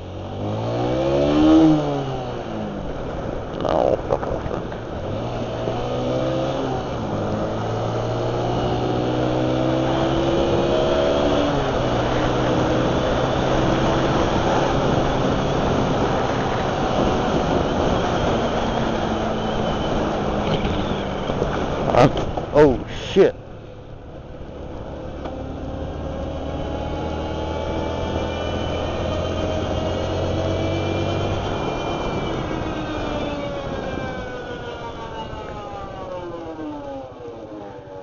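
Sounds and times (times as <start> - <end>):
motorcycle engine accelerating: 0.0 - 38.0
wind noise: 0.4 - 25.0, 25.6 - 37.1.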